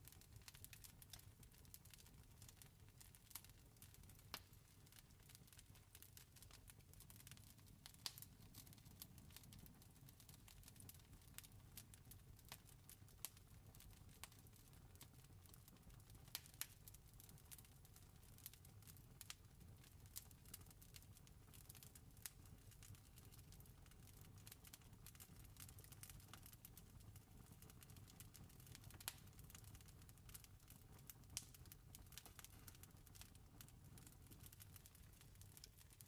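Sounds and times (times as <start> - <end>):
campfire crackling: 4.3 - 9.4, 28.5 - 30.4, 31.0 - 33.3, 34.0 - 35.8.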